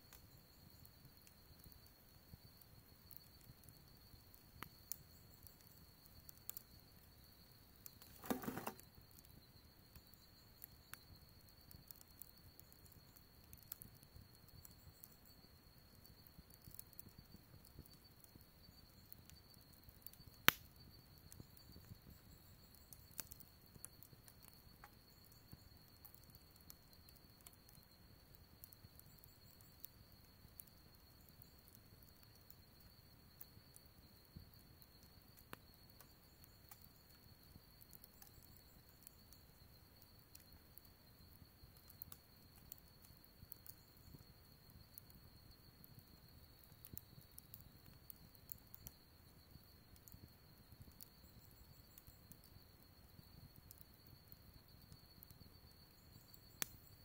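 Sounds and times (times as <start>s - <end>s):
wood fire crackling: 0.1s - 57.0s
sharp snap of fire: 7.9s - 8.8s, 20.4s - 20.7s, 56.6s - 56.8s.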